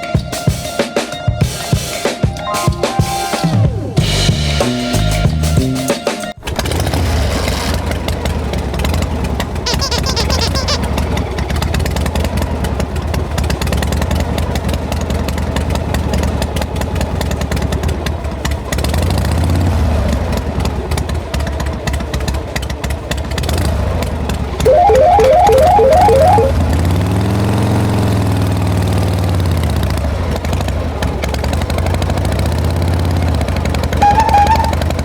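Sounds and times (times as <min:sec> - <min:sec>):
high warbling tone: 0:09.7 - 0:10.8, 0:24.7 - 0:26.6
toy vehicle motor drone: 0:09.7 - 0:10.8.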